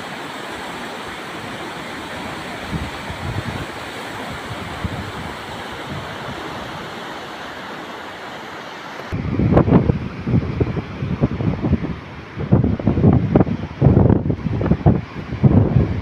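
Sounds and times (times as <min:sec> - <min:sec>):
flowing water: 0:00.0 - 0:16.0
wind buffeting microphone: 0:01.4 - 0:07.1, 0:09.1 - 0:16.0.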